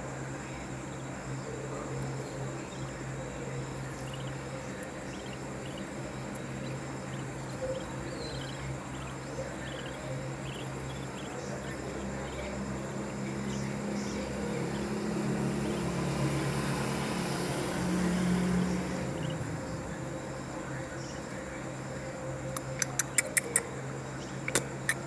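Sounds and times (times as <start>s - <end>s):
low motor hum: 0.0s - 23.2s
faint high chirps: 0.9s - 15.0s.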